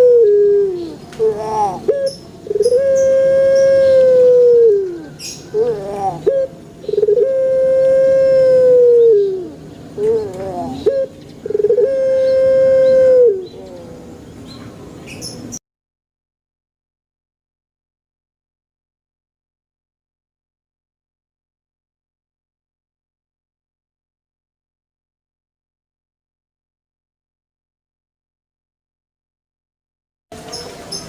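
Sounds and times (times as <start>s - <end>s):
dove cooing: 0.0s - 14.2s.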